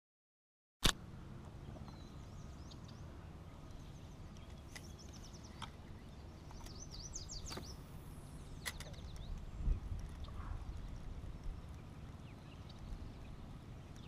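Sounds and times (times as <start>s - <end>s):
low background rumble: 1.0s - 14.0s
songbird singing faintly: 1.0s - 14.0s
faint sharp clicks: 3.6s - 5.8s.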